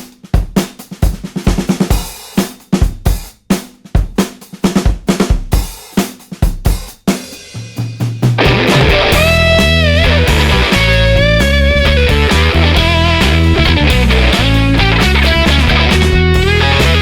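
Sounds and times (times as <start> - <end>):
drum kit playing fast rock beat: 0.0 - 17.0
low held bass note: 8.4 - 17.0.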